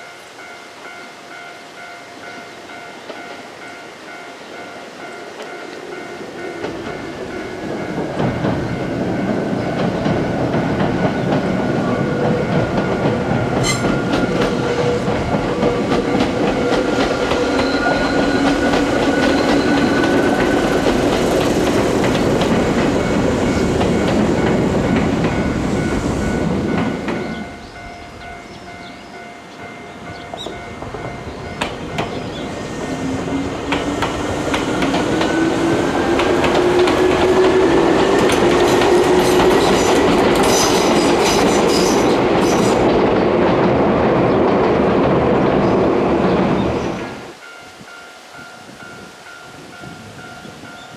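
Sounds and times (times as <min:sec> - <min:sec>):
train whine: 0:00.0 - 0:50.9
train wheels clattering: 0:06.2 - 0:27.7, 0:29.9 - 0:45.3.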